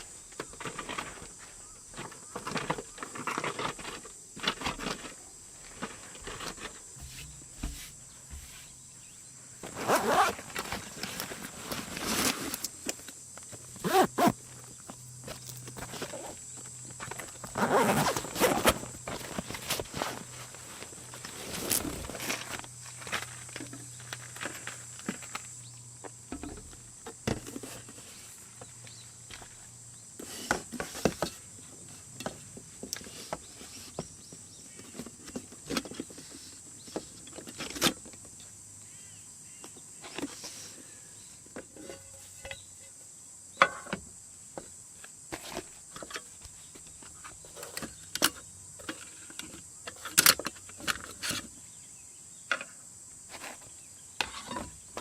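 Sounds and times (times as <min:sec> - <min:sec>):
insect chirring: 0:08.9 - 0:27.2.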